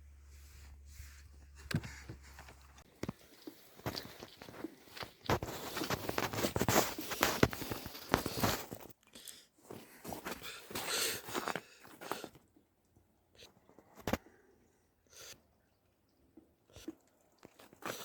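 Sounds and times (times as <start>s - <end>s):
footsteps crunching and rustling: 0.4s - 8.9s.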